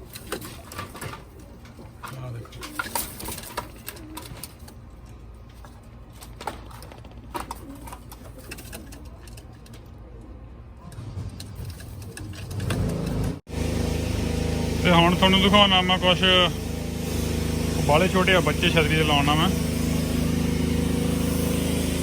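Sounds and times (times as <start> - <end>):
pigeons cooing: 0.0 - 4.8, 7.2 - 9.4.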